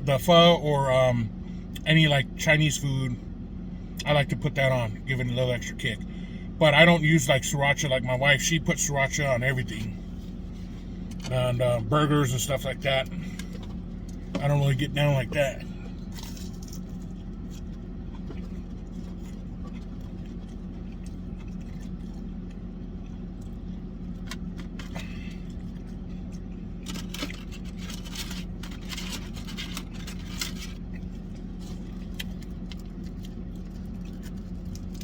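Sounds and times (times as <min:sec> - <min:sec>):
steady low hum: 0:00.0 - 0:35.0
food packaging crinkling: 0:26.8 - 0:35.0.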